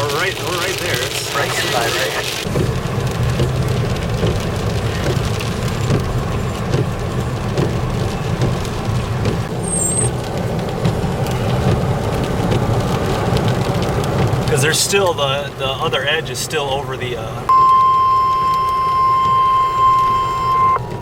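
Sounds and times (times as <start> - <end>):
car interior road rumble: 0.0 - 21.0.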